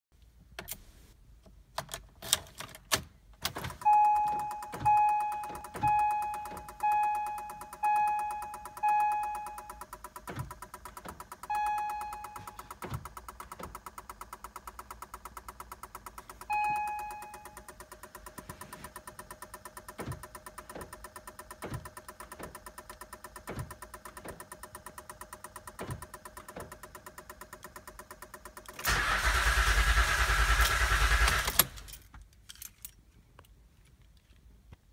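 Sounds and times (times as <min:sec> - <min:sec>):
car warning chime: 0:03.8 - 0:10.0, 0:11.3 - 0:12.8, 0:16.4 - 0:17.9
fast steady ticking: 0:13.0 - 0:16.6.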